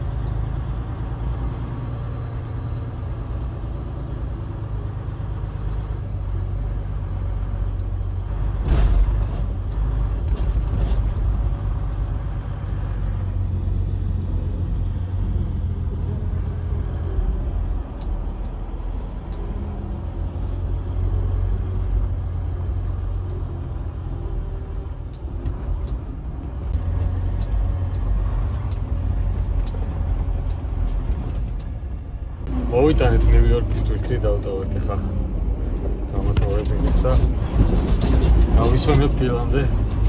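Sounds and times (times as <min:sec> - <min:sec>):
diesel engine rumbling: 0:00.0 - 0:40.0
faint clicks: 0:15.7 - 0:20.2, 0:20.9 - 0:31.8.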